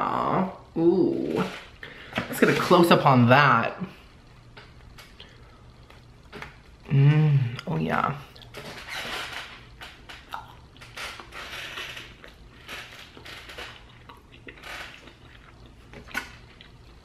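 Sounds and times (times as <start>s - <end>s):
faint hum: 0.0s - 17.0s
person chewing: 8.3s - 8.6s, 9.6s - 17.0s.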